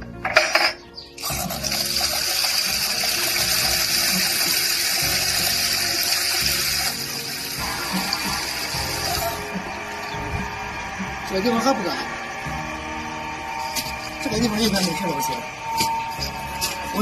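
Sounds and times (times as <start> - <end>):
water gushing from tap: 1.2 - 10.6.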